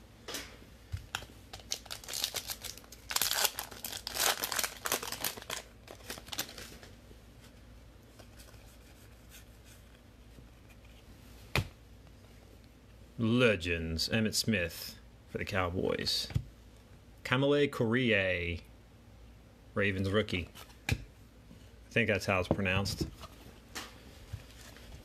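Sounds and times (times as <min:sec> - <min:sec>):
wrapper tearing and crinkling: 0:01.1 - 0:06.9.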